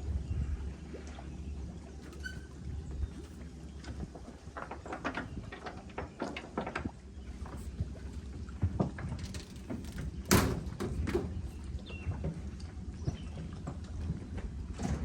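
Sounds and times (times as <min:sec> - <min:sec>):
knocks and clunks: 0:08.7 - 0:11.7.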